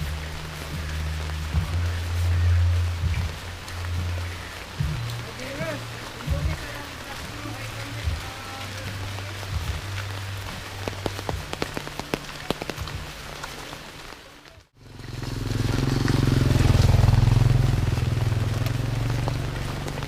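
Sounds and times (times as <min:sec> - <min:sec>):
rain falling: 0:00.0 - 0:20.0
loud low rumble: 0:14.8 - 0:20.0.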